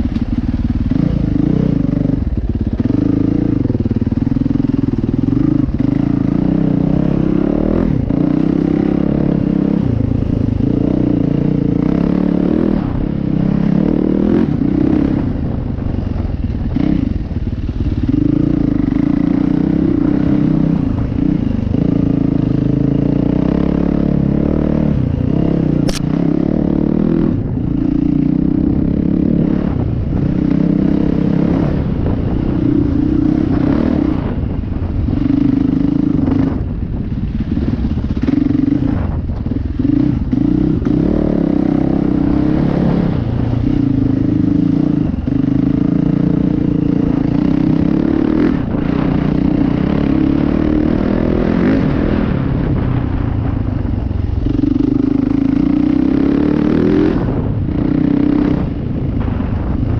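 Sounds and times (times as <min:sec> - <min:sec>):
dirt bike engine revving: 0:00.0 - 0:36.7, 0:37.3 - 0:53.3, 0:54.4 - 0:59.8
sharp click: 0:25.8 - 0:26.2.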